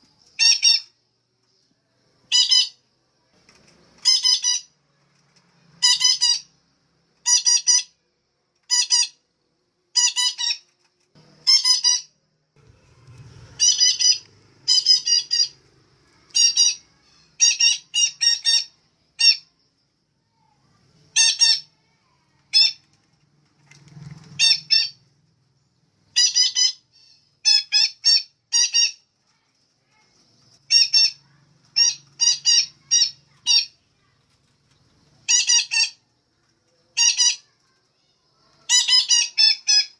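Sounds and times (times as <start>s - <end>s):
parakeet harsh squawks: 2.3s - 2.8s, 4.0s - 4.7s, 5.8s - 6.5s, 7.2s - 7.9s, 8.7s - 9.2s, 10.0s - 10.6s, 11.4s - 12.1s, 13.5s - 15.6s, 16.2s - 19.5s, 21.1s - 21.7s, 24.4s - 25.0s, 26.2s - 29.1s, 30.7s - 33.8s, 35.3s - 36.0s, 37.0s - 37.6s, 38.6s - 39.9s.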